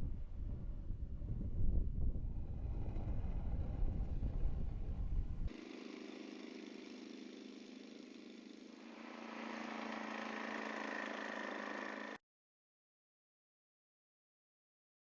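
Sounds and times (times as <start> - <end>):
engine running: 2.3 - 12.2.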